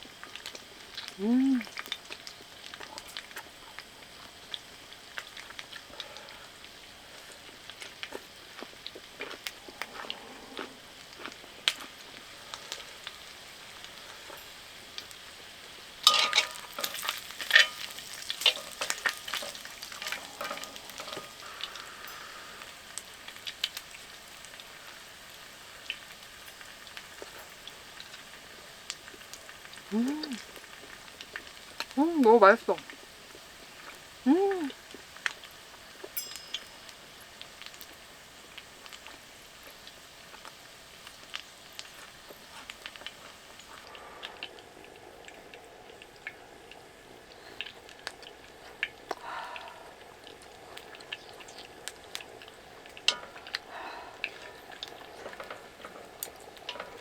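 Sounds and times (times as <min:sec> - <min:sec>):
small crackling pops: 0:00.0 - 0:10.2, 0:10.9 - 0:49.5, 0:50.2 - 0:57.0
food sizzling on grill: 0:00.0 - 0:57.0.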